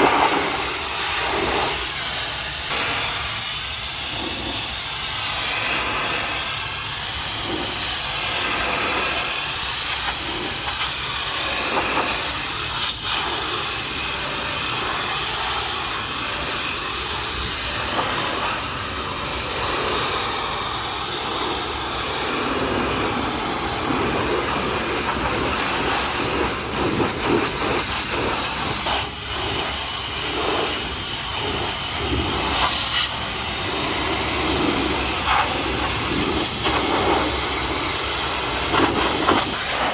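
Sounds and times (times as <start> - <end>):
pressure washer spraying water: 0.0 - 39.9.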